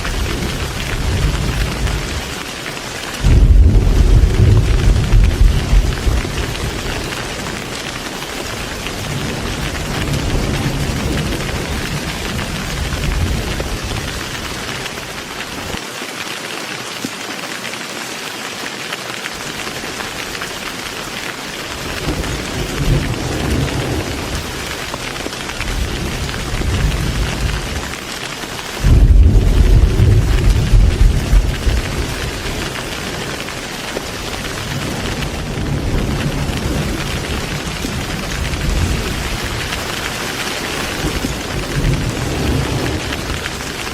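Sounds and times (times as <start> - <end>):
thunder rumbling: 0.0 - 15.8, 21.6 - 43.9
heavy rain hissing: 0.0 - 43.9.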